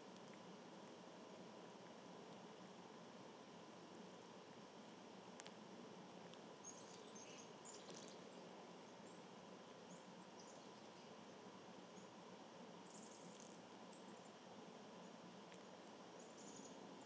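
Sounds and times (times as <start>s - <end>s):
faint hiss: 0.0s - 17.0s.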